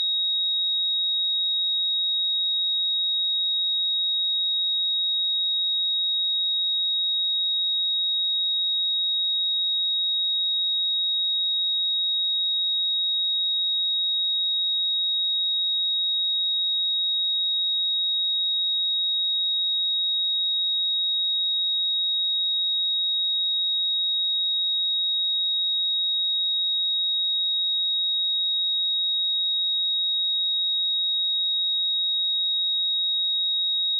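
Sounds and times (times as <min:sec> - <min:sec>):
high-pitched sine-wave test tone: 0:14.8 - 0:33.9.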